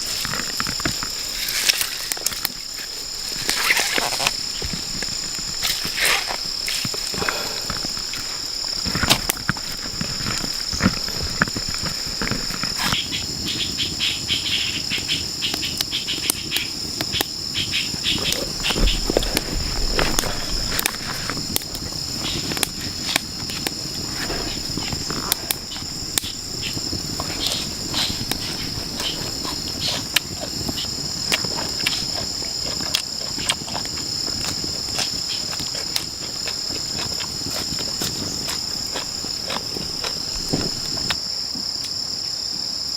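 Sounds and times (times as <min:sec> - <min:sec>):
insect chorus drone: 0:00.0 - 0:42.9.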